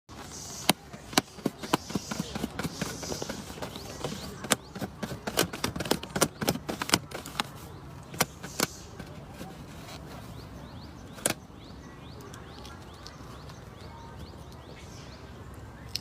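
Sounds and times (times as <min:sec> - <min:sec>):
sharp taps and knocks: 0:00.2 - 0:10.1.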